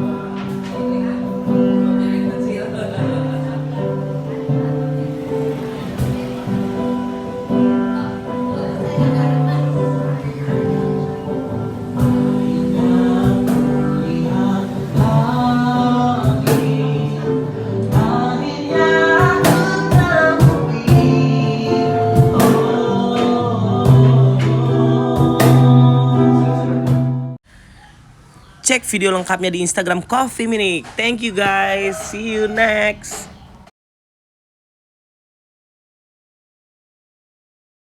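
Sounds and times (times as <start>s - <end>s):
acoustic guitar strumming: 0.0s - 27.4s
person singing: 12.1s - 26.8s, 28.7s - 33.3s.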